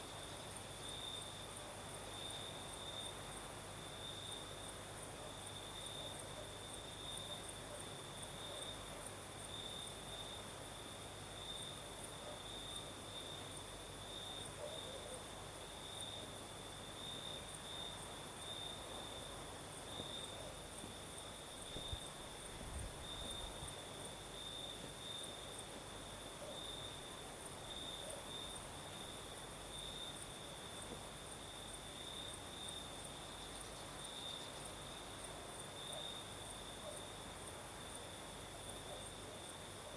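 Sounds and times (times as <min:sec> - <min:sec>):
faint breeze hiss: 0:00.0 - 0:39.9
high insect chorus ticking: 0:00.0 - 0:39.9
crickets trilling: 0:09.4 - 0:39.9.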